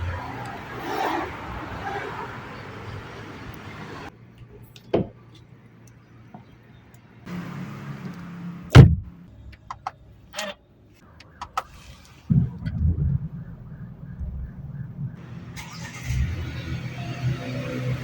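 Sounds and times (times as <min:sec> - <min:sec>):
car door shutting: 0:08.7 - 0:09.1
car engine starting: 0:11.3 - 0:18.0.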